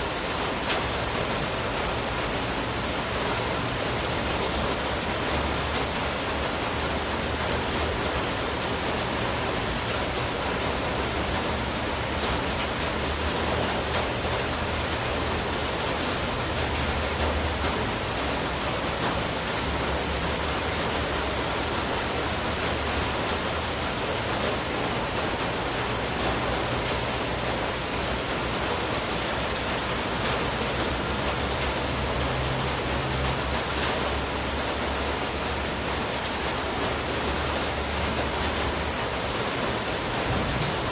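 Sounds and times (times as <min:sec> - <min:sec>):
heavy rain hissing: 0:00.0 - 0:40.9.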